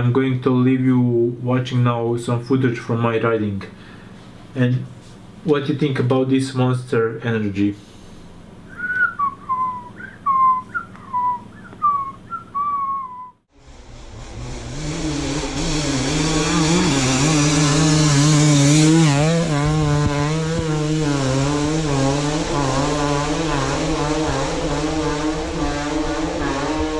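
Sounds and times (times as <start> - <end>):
falling whistled notes: 8.7 - 13.4
dirt bike engine revving: 13.5 - 26.9.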